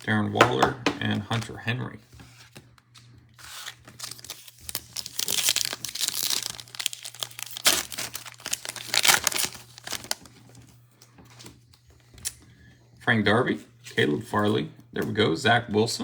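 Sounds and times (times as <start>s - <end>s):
foil wrapper tearing and crinkling: 3.4s - 10.8s.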